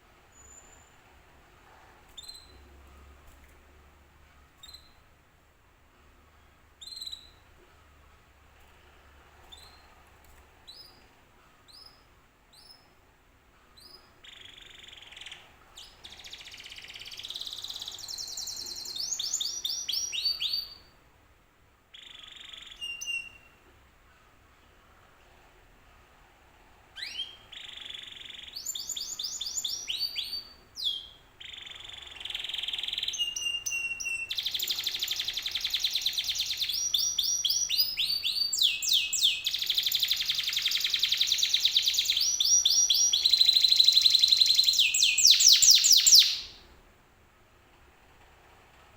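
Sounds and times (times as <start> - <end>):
canary singing trills: 2.1 - 2.7, 4.6 - 5.0, 6.8 - 7.5, 13.8 - 20.9, 21.9 - 23.6, 27.0 - 46.6.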